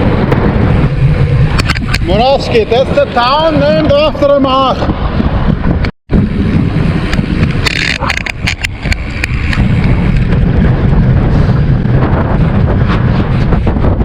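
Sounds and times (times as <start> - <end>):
wind buffeting microphone: 0.0 - 14.0
clicks and rattles: 1.5 - 2.1, 7.1 - 10.3.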